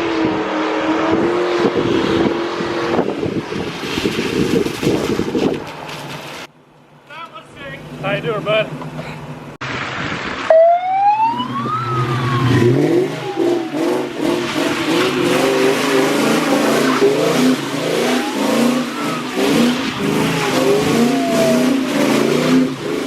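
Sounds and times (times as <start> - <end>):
car engine revving: 11.2 - 23.0.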